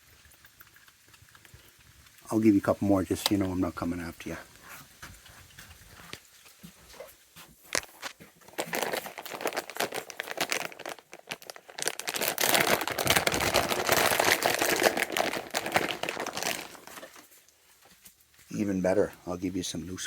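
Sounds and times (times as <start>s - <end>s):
bag of peanuts rustling: 5.8s - 19.1s.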